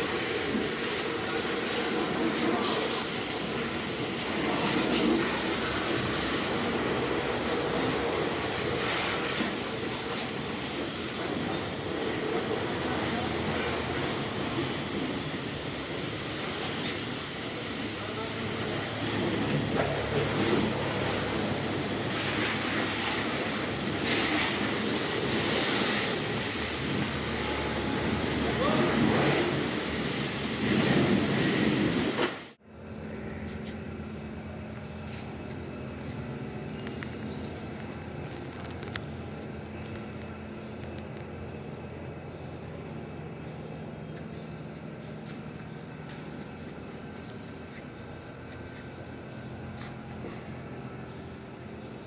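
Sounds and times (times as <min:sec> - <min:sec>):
car wash equipment hissing: 0:00.0 - 0:32.6.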